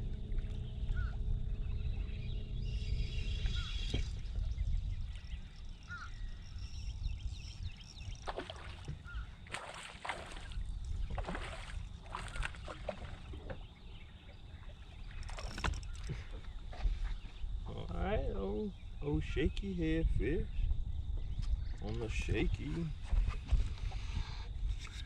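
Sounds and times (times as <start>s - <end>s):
boat low rumble: 0.0s - 25.0s
short knocks or splashes: 8.2s - 13.6s.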